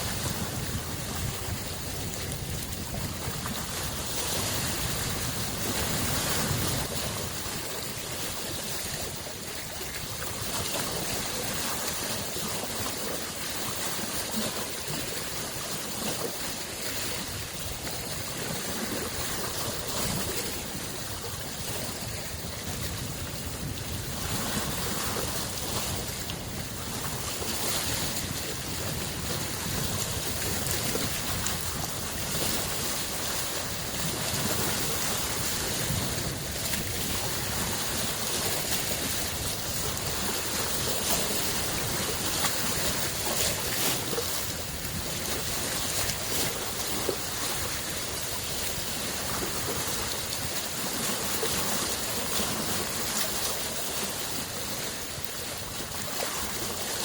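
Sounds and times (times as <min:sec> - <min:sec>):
lake waves washing against shore: 0:00.0 - 0:57.0.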